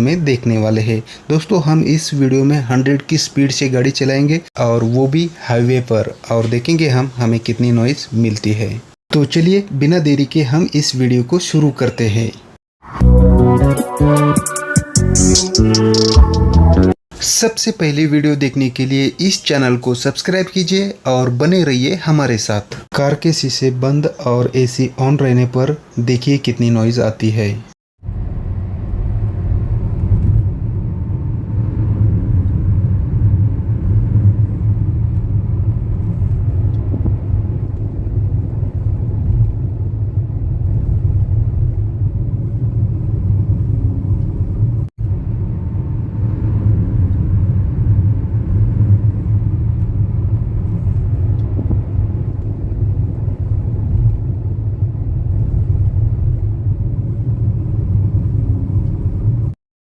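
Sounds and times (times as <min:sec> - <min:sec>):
road and tyre rumble: 0:28.0 - 0:59.5.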